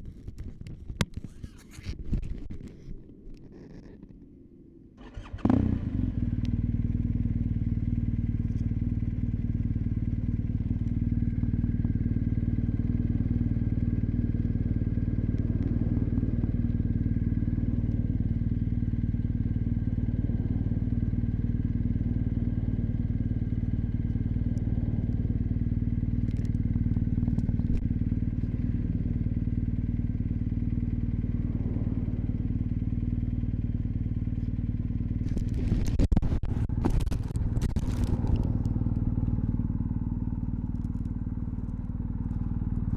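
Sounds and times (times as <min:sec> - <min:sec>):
motorcycle engine starting and idling: 0:05.0 - 0:42.9.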